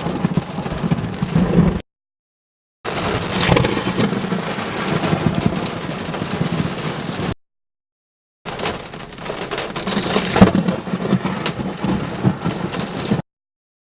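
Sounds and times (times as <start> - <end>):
hail pelting down: 0.0 - 1.8, 2.9 - 7.4, 8.5 - 13.2
large hailstones striking: 0.0 - 1.8, 2.9 - 7.4, 8.5 - 13.2.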